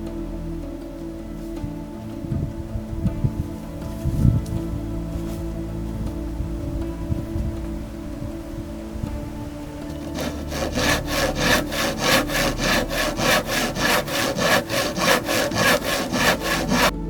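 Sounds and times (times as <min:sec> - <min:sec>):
hand saw cutting wood: 0:10.0 - 0:17.0.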